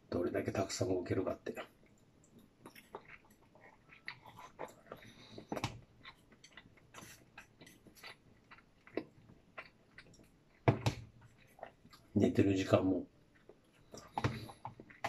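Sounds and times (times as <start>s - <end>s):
person chewing food: 1.6s - 12.1s, 13.1s - 15.0s.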